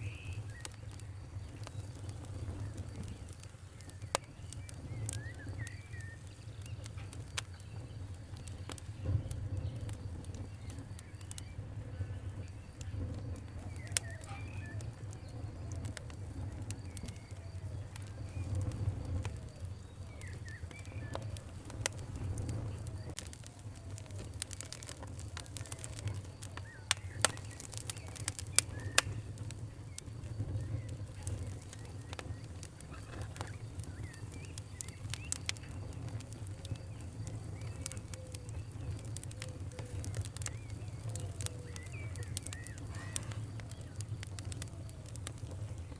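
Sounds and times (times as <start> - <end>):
wood fire crackling: 0.0 - 45.9
faint bird calls: 10.4 - 45.9.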